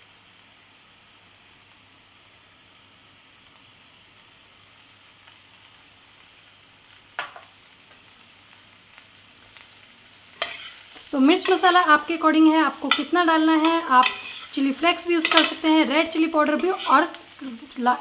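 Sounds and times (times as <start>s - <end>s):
potato slices sizzling in a pan: 0.0s - 18.0s
utensil clacking against pan: 10.4s - 10.8s, 12.8s - 14.5s, 15.2s - 15.6s.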